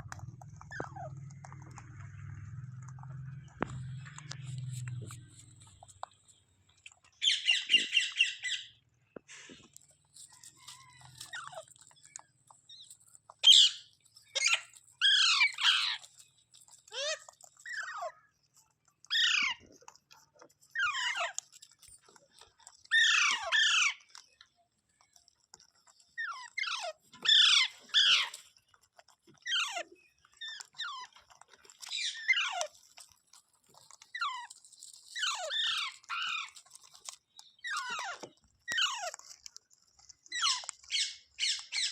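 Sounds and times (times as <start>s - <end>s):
parakeet calling: 7.2s - 8.8s, 13.4s - 16.0s.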